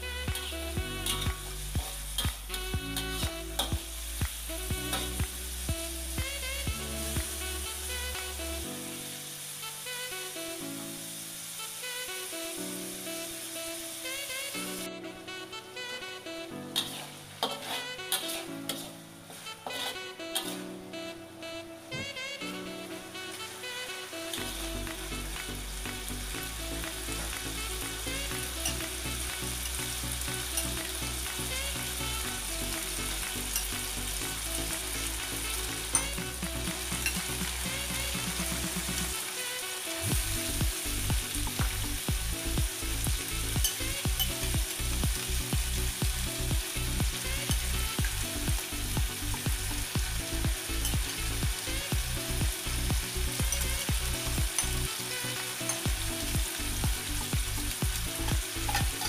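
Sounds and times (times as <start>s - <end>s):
meat sizzling in a wok: 0.0s - 14.9s, 16.7s - 20.6s, 23.3s - 59.0s
metal spatula stirring: 0.4s - 1.2s, 16.8s - 20.6s.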